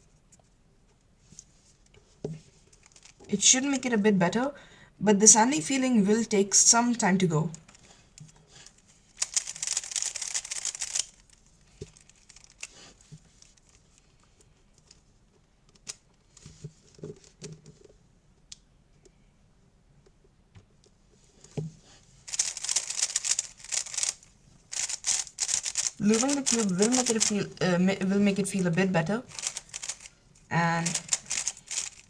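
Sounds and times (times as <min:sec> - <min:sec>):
puzzle cube rattling turns: 0:02.5 - 0:03.8, 0:07.5 - 0:14.1, 0:22.3 - 0:32.0.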